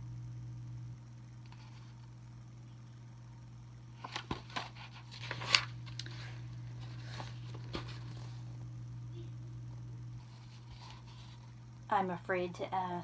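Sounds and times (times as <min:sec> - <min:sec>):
low hum: 0:00.0 - 0:04.0, 0:05.2 - 0:12.0
book pages turning: 0:04.0 - 0:08.6, 0:10.2 - 0:11.5.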